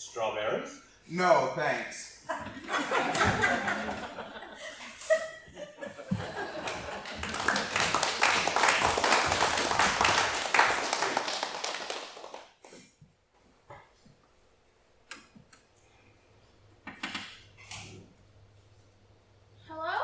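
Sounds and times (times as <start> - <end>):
audience laughing: 2.3 - 8.0
audience applause: 6.1 - 12.7.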